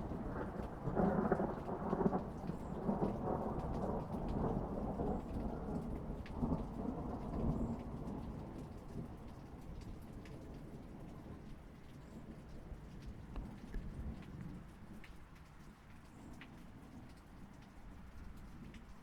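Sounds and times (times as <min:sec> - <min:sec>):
rolling thunder: 0:00.0 - 0:09.1
steady rain: 0:00.0 - 0:19.0.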